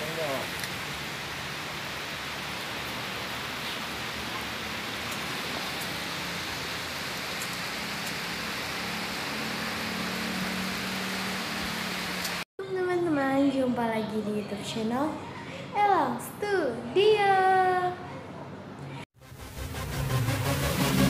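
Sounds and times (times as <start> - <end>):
heavy rain hissing: 0.0 - 12.5.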